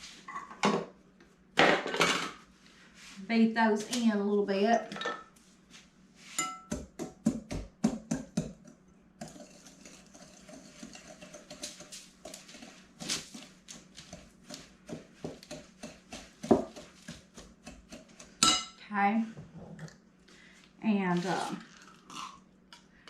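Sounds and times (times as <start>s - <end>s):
utensil beating eggs in a bowl: 6.4s - 18.5s.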